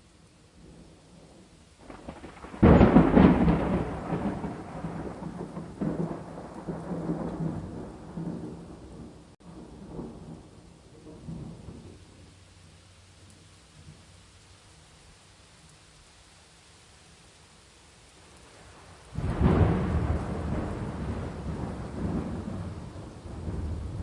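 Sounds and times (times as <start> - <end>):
steady rain: 0.0 - 24.0
thunder rumbling: 0.6 - 12.3, 18.5 - 24.0.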